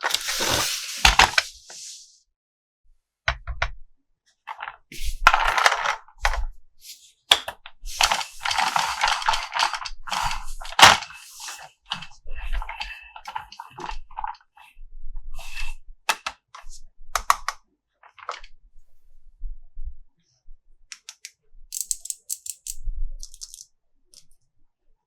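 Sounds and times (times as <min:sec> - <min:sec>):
packaging rustling: 0:00.0 - 0:02.0, 0:07.9 - 0:14.4
plastic toys clicking and tapping: 0:04.5 - 0:06.4, 0:07.3 - 0:11.1, 0:20.9 - 0:24.4.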